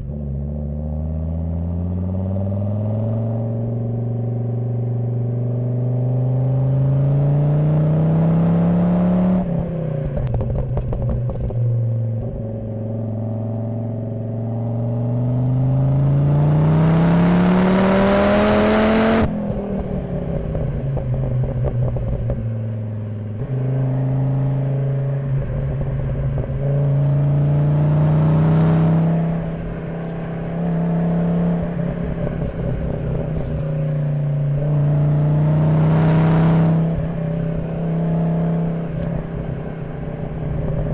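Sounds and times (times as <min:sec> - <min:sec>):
car engine revving: 0:00.0 - 0:40.9
exhaust crackle: 0:09.4 - 0:16.4, 0:19.1 - 0:27.6, 0:28.8 - 0:35.0, 0:36.4 - 0:40.9.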